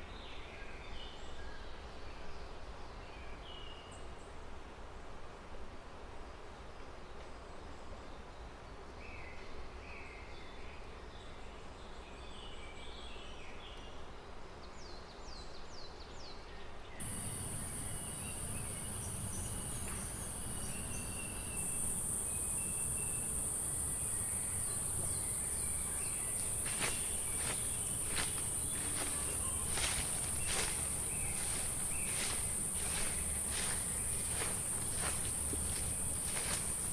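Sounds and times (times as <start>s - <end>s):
background hiss: 17.0s - 36.9s
birds chirping: 17.0s - 36.9s
high-pitched insect drone: 17.0s - 36.9s.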